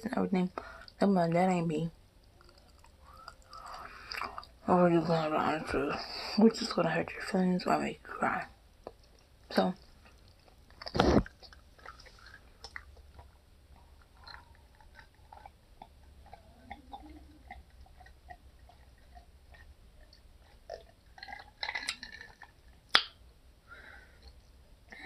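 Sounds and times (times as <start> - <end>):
person chewing food: 2.1 - 4.6, 8.8 - 23.2, 23.9 - 24.6
wet mouth clicks: 14.0 - 23.2.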